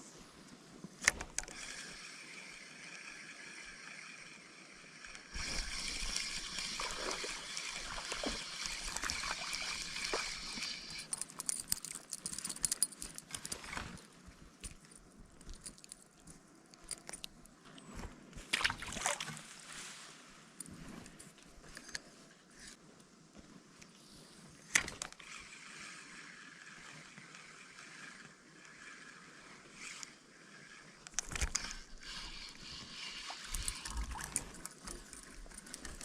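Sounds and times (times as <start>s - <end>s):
stream water splashing: 5.4s - 11.0s, 18.5s - 19.7s.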